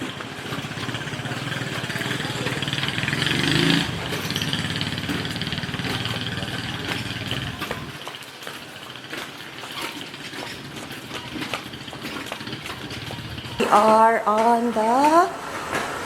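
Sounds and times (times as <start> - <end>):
small engine running: 0.0 - 8.5, 9.6 - 13.9.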